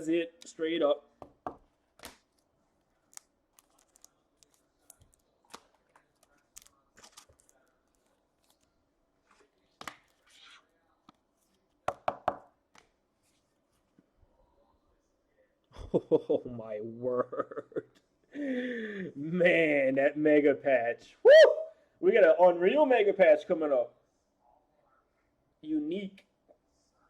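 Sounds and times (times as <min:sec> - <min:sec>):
cards crinkling and tapping: 0:01.2 - 0:10.3.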